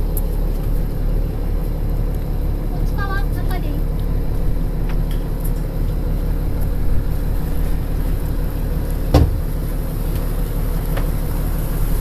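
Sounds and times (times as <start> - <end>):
boat engine humming: 0.0 - 12.0
short knock: 9.1 - 9.5.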